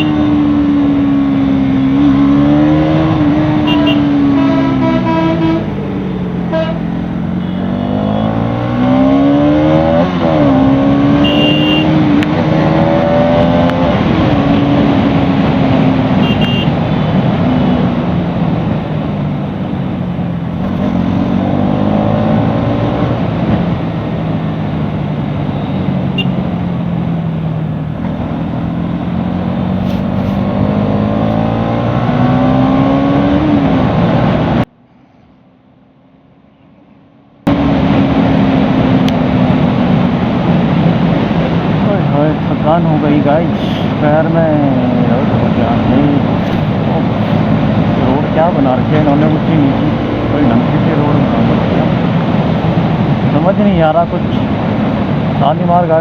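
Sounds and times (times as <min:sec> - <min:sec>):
horn toots: 0:00.0 - 0:00.3, 0:03.4 - 0:05.8, 0:06.5 - 0:08.6, 0:10.9 - 0:12.0, 0:16.1 - 0:16.8, 0:25.6 - 0:26.4
motorcycle engine revving: 0:00.0 - 0:34.7, 0:37.4 - 0:56.0.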